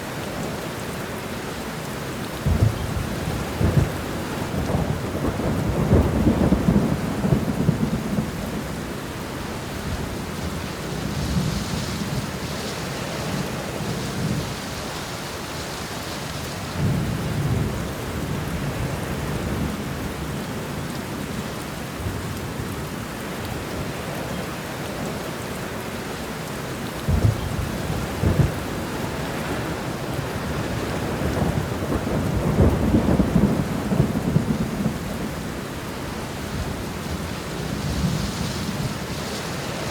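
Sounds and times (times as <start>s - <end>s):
steady rain: 0.0s - 39.9s
thunder rolling: 2.4s - 8.8s, 27.1s - 35.6s.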